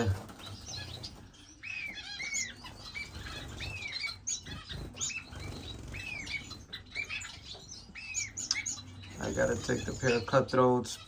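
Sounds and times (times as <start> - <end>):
wings fluttering: 0.0 - 8.0
finches chirping: 0.0 - 11.0.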